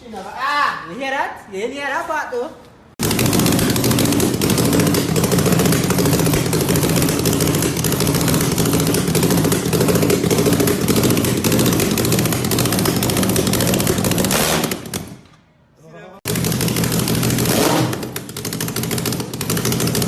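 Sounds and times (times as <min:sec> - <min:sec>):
motorcycle engine running: 0:03.0 - 0:15.2, 0:16.3 - 0:20.0.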